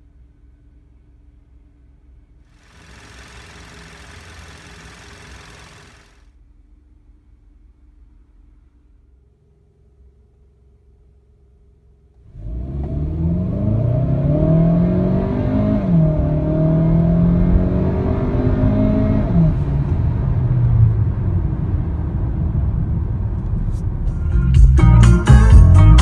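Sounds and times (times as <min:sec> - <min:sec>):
car engine accelerating hard: 0:02.6 - 0:06.2, 0:12.3 - 0:22.6.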